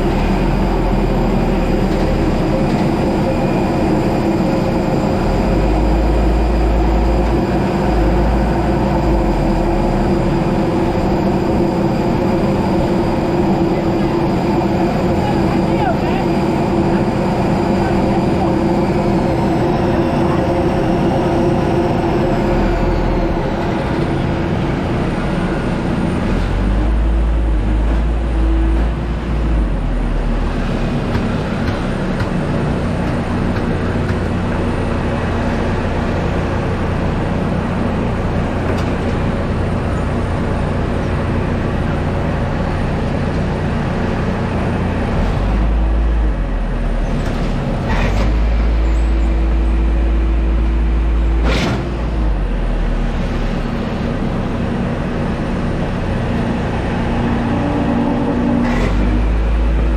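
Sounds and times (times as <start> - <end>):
high whine gliding down: 0.0 - 28.8, 54.2 - 59.9
deep rumble: 0.0 - 59.9
engine and machinery noise: 0.0 - 59.9.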